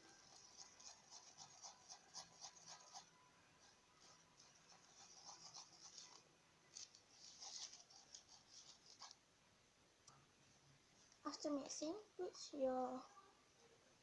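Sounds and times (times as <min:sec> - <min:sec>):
spoon scraping glue on plate: 0:00.0 - 0:03.1, 0:04.0 - 0:06.2.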